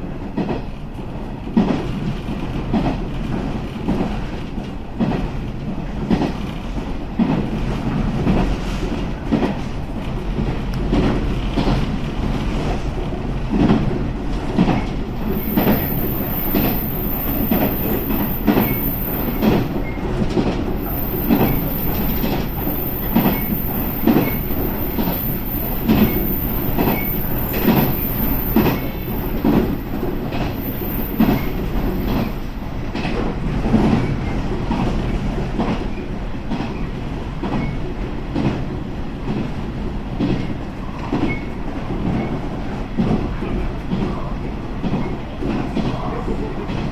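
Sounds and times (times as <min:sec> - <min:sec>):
train rumble: 0:00.0 - 0:46.9
high wheel squeal: 0:15.2 - 0:20.0, 0:20.8 - 0:32.3.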